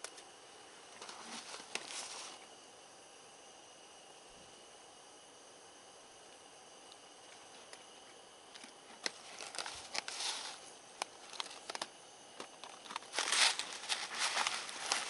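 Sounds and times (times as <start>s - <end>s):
insect chirring: 8.5s - 15.0s
sharp clicks and rustling: 8.5s - 15.0s.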